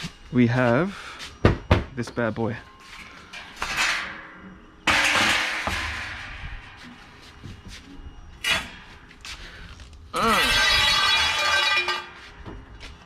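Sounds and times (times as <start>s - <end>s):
scrap metal clattering: 2.8s - 7.7s, 10.2s - 13.0s.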